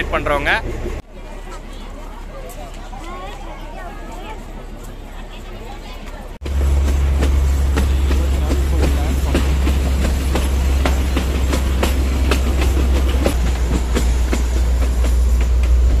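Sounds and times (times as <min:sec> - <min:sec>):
train low rumble: 0:00.0 - 0:16.0
wheels clicking over rail joints: 0:06.0 - 0:16.0.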